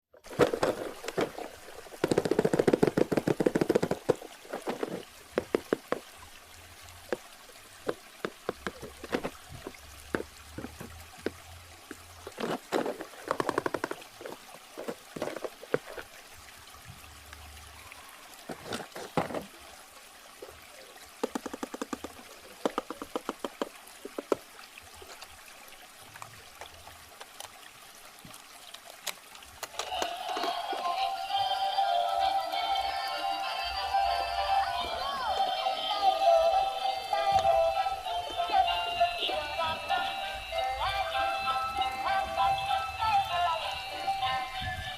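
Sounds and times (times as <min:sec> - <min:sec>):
water trickling: 0:00.0 - 0:44.9
packaging crinkling and rustling: 0:00.2 - 0:06.0, 0:12.3 - 0:16.1.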